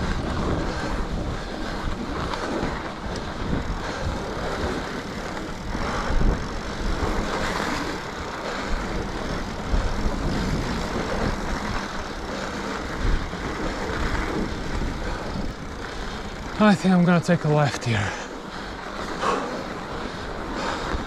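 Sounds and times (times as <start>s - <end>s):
bike bumps and jolts: 0.0s - 16.6s, 18.3s - 21.0s
wind on microphone: 0.0s - 16.6s
tyres on packed snow: 0.0s - 21.0s.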